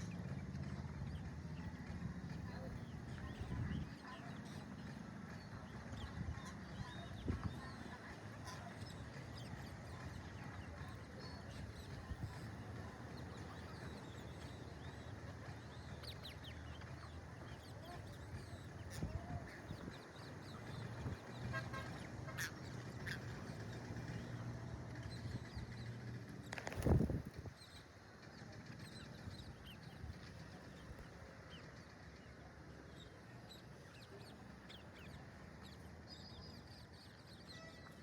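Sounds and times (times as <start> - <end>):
parakeets squawking and chirping: 17.8 - 24.2.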